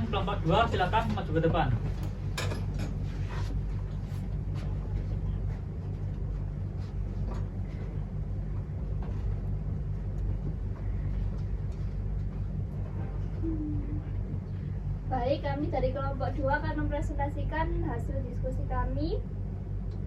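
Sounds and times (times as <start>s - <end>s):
people shuffling about a room: 0.0s - 14.9s
steady low hum: 0.0s - 20.0s.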